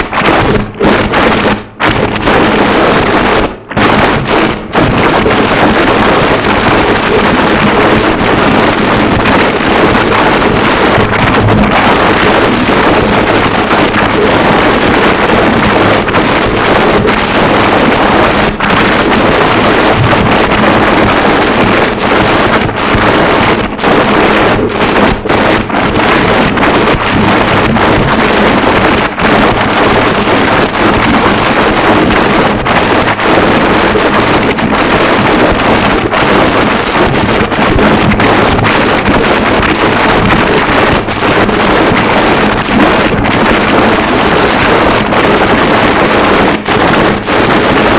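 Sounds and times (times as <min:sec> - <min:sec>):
harsh distorted static noise: 0:00.0 - 0:47.9.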